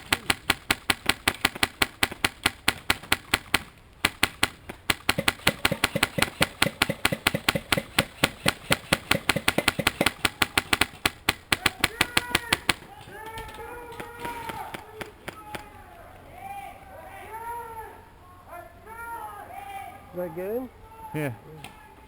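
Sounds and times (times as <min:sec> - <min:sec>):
airsoft rifle rapid firing: 0:00.0 - 0:15.7.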